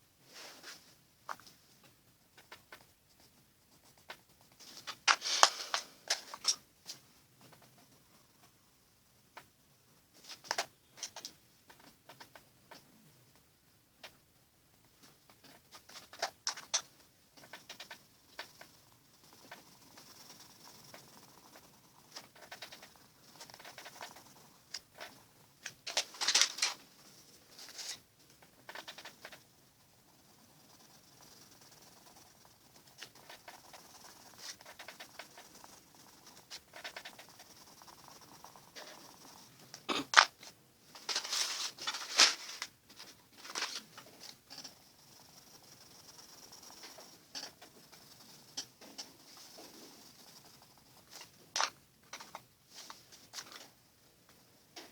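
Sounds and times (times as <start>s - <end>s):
pencil scratching on paper: 15.5s - 39.9s, 41.0s - 51.5s.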